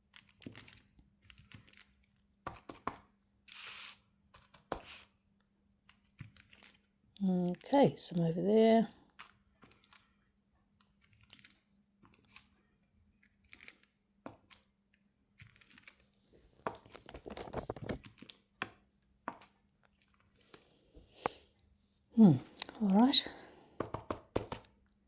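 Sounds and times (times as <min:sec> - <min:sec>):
tape crinkling and rustling: 0:00.0 - 0:02.4, 0:05.8 - 0:08.0, 0:08.9 - 0:21.4.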